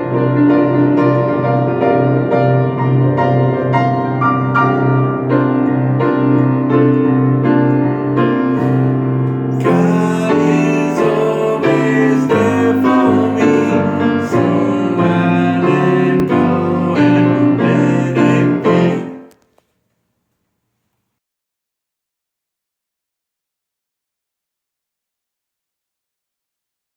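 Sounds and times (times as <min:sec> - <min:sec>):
piano music: 0:00.0 - 0:19.4.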